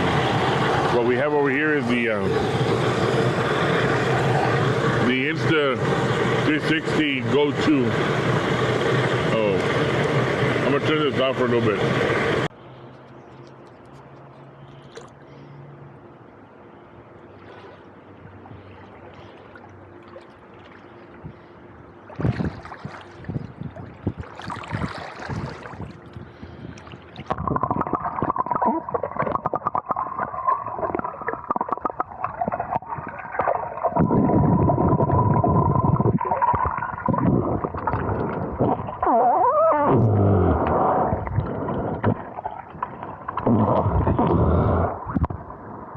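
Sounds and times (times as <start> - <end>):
water gurgling over microphone: 0.0 - 12.5, 17.3 - 45.9
steady whining tone: 0.0 - 14.8.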